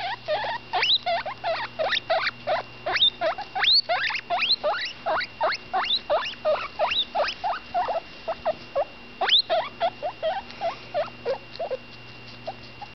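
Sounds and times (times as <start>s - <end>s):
guinea pig squeaking: 0.0s - 12.9s.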